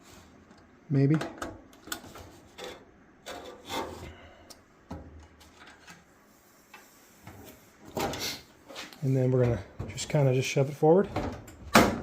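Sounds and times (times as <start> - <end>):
panel parts scraping: 1.2 - 4.2.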